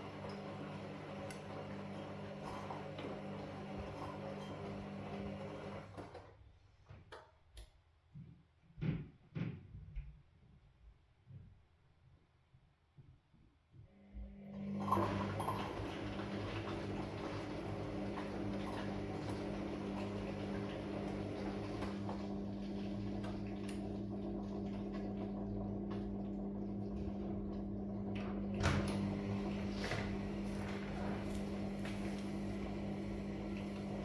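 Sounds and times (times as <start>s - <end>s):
washing machine churning: 0.0s - 6.4s, 14.4s - 34.0s.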